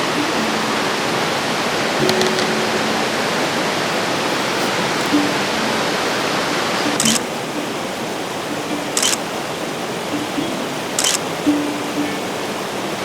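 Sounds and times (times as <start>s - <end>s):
river rushing: 0.0s - 13.0s
short sharp high clicks: 7.0s - 7.2s, 11.0s - 11.2s.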